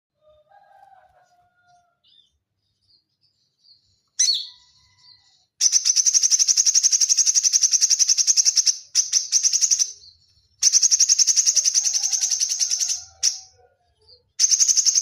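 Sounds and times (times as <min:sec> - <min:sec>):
bird singing whistles and chirps: 0:04.0 - 0:15.0
rapid high bird trill: 0:05.6 - 0:13.6, 0:14.4 - 0:15.0
sharp bird call: 0:10.6 - 0:13.6.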